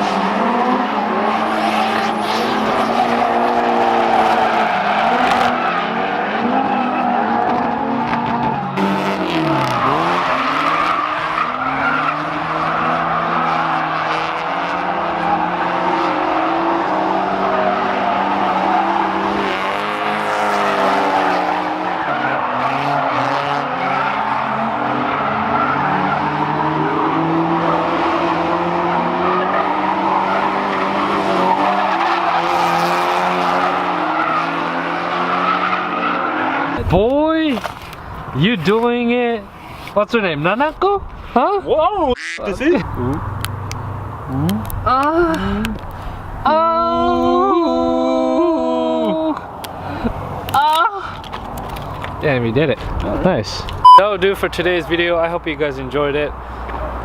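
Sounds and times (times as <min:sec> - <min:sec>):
car engine revving hard: 0:00.0 - 0:36.8
tire squeal: 0:00.0 - 0:36.8.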